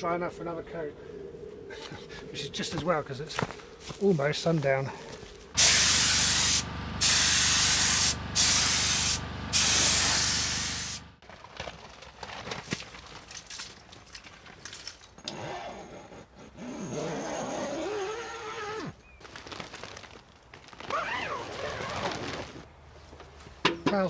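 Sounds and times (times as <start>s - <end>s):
paint spray gun hissing: 5.6s - 11.2s.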